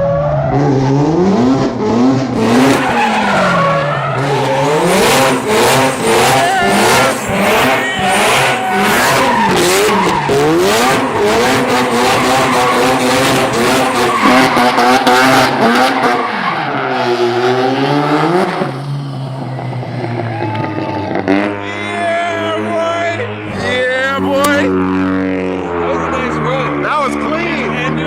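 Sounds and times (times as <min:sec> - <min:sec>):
car engine revving: 0:00.0 - 0:28.0
tyres squealing: 0:02.6 - 0:16.8.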